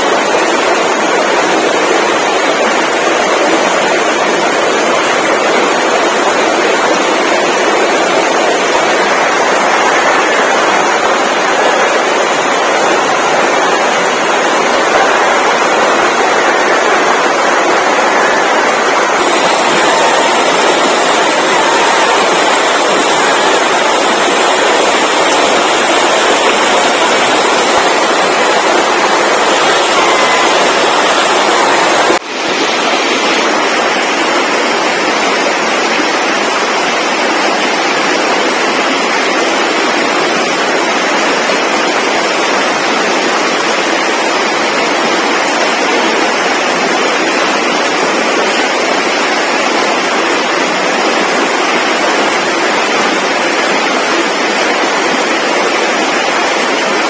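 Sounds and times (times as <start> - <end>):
loud rushing noise: 0.0 - 41.6.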